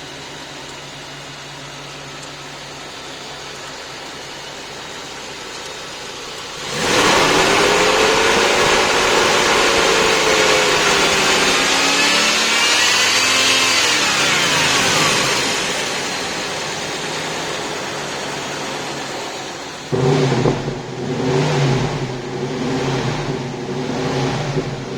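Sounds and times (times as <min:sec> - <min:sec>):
car engine revving: 0:06.3 - 0:24.9.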